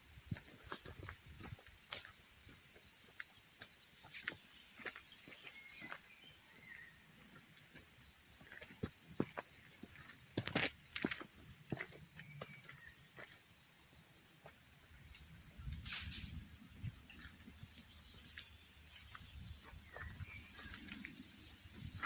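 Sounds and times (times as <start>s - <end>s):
steady high-pitched hiss: 0.0s - 22.0s.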